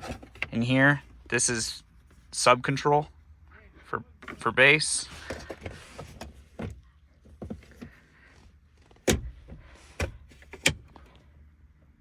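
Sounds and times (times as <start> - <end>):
clicks and knocks in car cabin: 5.2 - 11.1.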